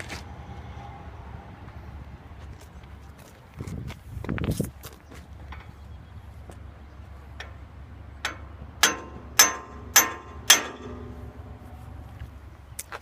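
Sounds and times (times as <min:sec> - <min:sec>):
hammer striking metal: 0:08.2 - 0:11.6.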